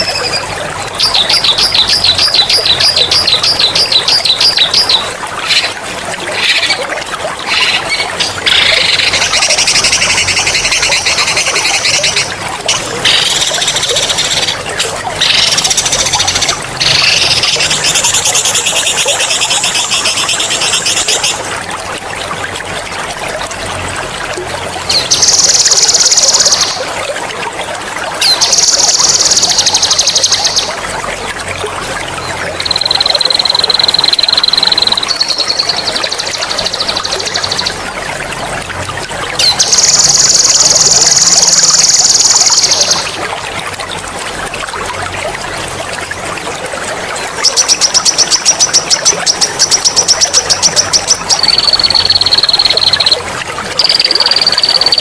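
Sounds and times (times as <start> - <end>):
water trickling: 0.0 - 55.0
songbird trilling: 32.6 - 37.7, 47.6 - 53.2, 53.8 - 55.0.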